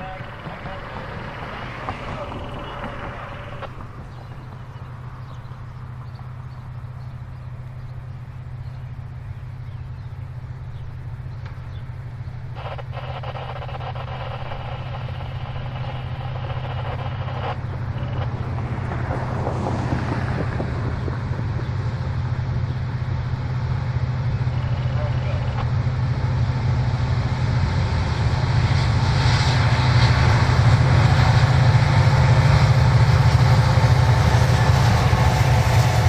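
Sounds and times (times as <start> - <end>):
locomotive engine rumble: 0.0 - 36.0
train wheel and rail noise: 0.0 - 36.0
locomotive horn: 12.5 - 18.9, 27.8 - 36.0.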